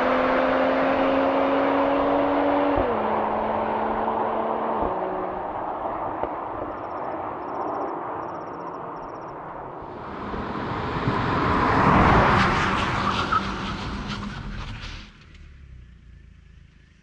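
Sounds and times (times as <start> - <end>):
car engine pulling hard: 9.8 - 17.0.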